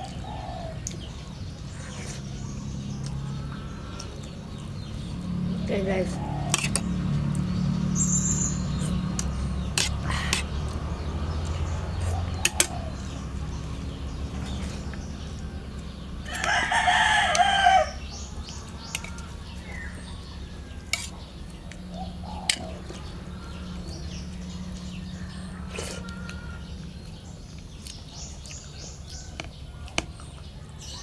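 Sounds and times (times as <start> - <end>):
rooster crowing: 16.2 - 18.2.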